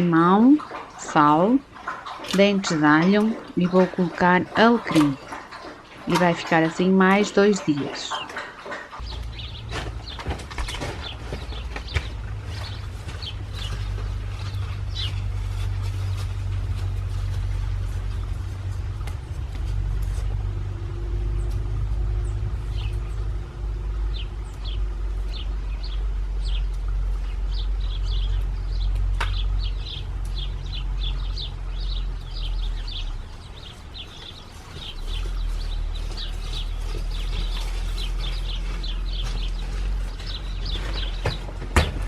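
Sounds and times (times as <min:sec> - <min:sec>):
small birds chirping: 0:00.0 - 0:42.0
steady low rumble: 0:08.9 - 0:42.0.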